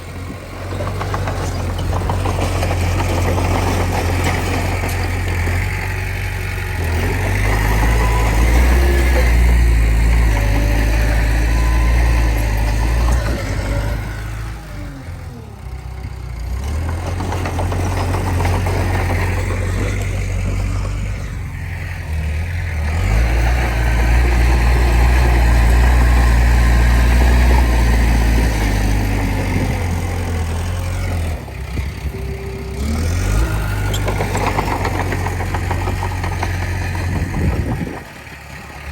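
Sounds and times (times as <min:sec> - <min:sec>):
bulldozer diesel engine under load: 0:00.0 - 0:38.9.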